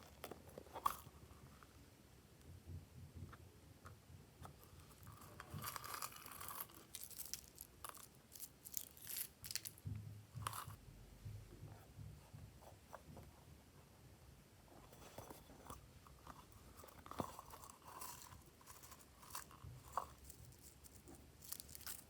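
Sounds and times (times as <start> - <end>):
sticky clicks and crackles: 17.2 - 22.0.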